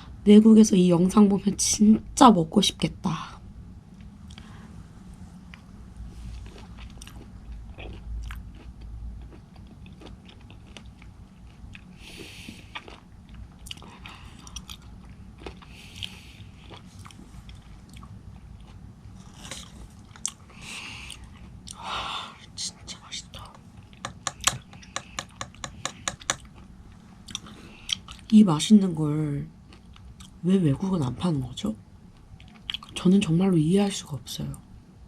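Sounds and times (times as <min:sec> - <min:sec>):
chewing raw fish: 0:06.4 - 0:21.8.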